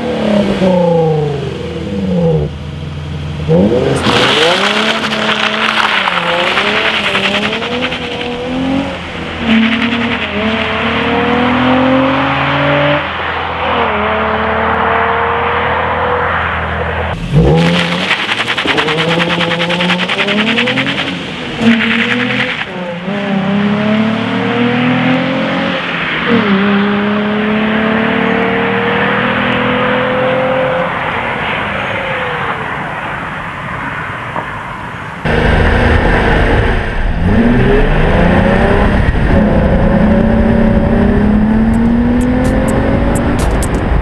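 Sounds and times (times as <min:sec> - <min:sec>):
car exhaust accelerating hard: 0:03.4 - 0:13.0, 0:17.1 - 0:25.0, 0:35.2 - 0:44.0.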